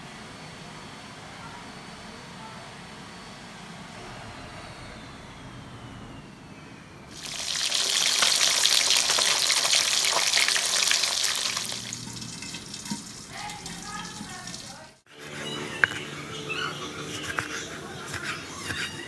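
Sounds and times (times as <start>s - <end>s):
tap water running into sink: 7.2s - 15.0s.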